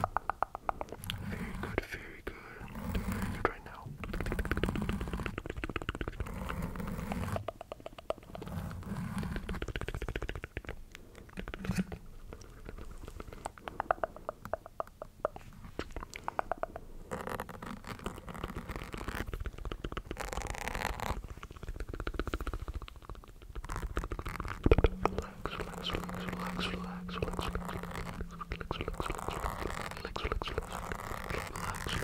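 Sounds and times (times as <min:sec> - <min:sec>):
wet mouth clicks and smacks: 0:00.0 - 0:01.2, 0:04.8 - 0:06.2, 0:07.4 - 0:08.4, 0:09.4 - 0:17.0, 0:18.8 - 0:32.0
breathy swells: 0:24.7 - 0:32.0.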